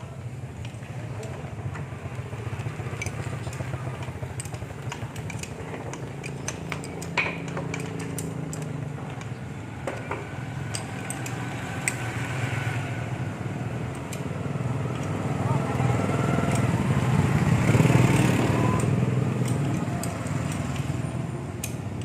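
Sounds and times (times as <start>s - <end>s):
metallic clinks and taps: 2.7s - 12.2s, 18.1s - 22.0s.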